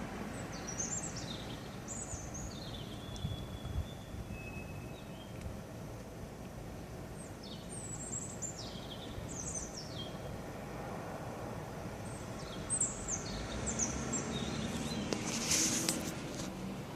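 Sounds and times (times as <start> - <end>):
songbird singing high notes: 0.4 - 5.4.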